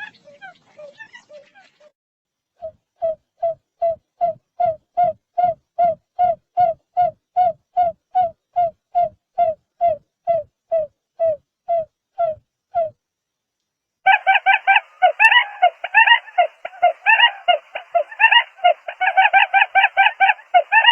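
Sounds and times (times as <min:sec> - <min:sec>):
buttonquail low hooting call: 0:14.1 - 0:20.9.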